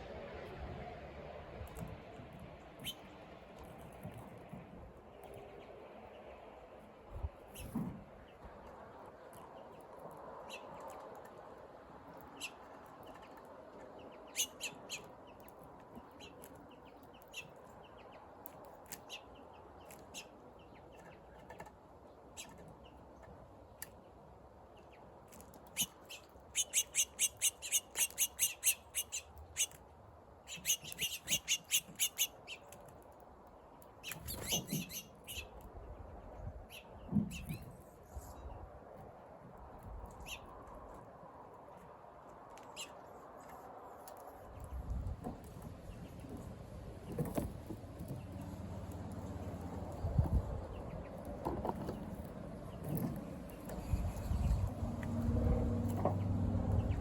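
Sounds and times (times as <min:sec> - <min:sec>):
small bird chirping: 0:25.7 - 0:29.8, 0:30.5 - 0:32.8, 0:34.0 - 0:35.6.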